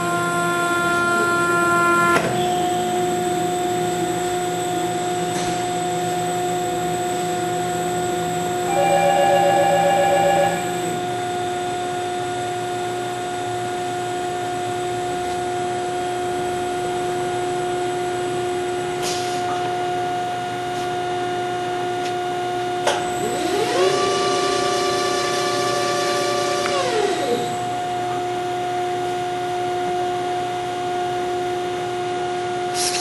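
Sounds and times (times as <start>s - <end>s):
machine mechanical whine: 0.0s - 20.6s, 21.2s - 31.9s
drive motor whining up: 23.1s - 27.7s.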